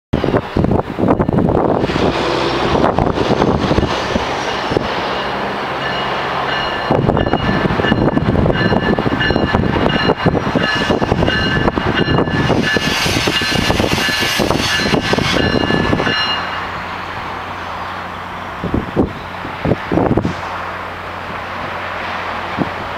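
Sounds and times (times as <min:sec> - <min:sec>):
train wheels clattering on rails: 0:01.1 - 0:17.3
high-pitched squeal: 0:10.6 - 0:18.5.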